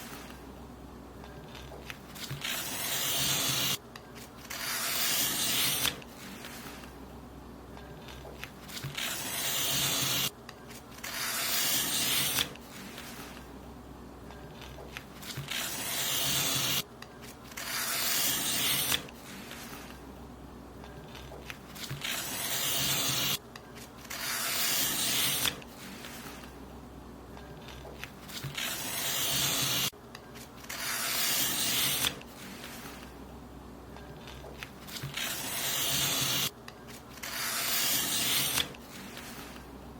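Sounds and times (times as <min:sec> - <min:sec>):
paper being cut: 0:01.5 - 0:06.9, 0:08.0 - 0:10.3, 0:10.9 - 0:13.4, 0:14.6 - 0:20.0, 0:21.1 - 0:23.4, 0:24.0 - 0:26.5, 0:27.6 - 0:29.9, 0:30.6 - 0:33.1, 0:34.2 - 0:36.5, 0:37.1 - 0:39.6.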